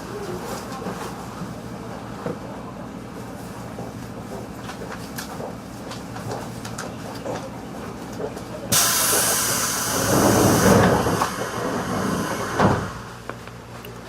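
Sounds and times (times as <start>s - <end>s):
train running noise: 0.0s - 13.8s
loud hissing rush: 8.7s - 13.2s
thump: 12.6s - 13.0s.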